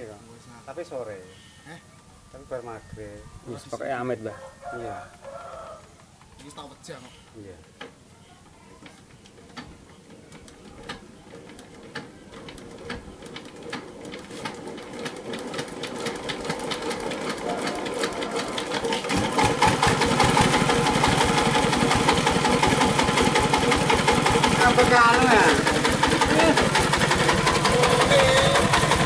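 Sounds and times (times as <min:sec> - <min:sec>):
diesel generator engine starting: 0:10.5 - 0:29.0.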